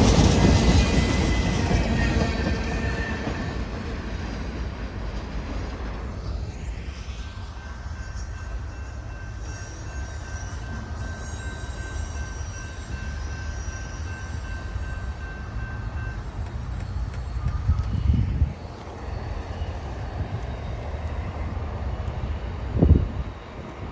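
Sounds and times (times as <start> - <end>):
freight train rumbling on rails: 0.0 - 23.9.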